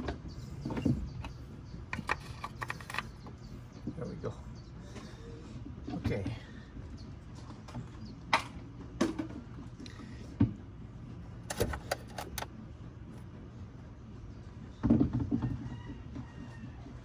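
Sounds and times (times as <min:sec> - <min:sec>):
clatter: 0:00.8 - 0:03.2, 0:11.5 - 0:12.5.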